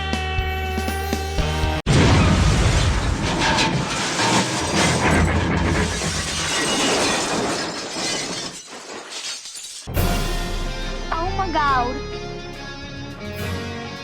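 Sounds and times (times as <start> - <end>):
car crash: 1.9 - 11.0.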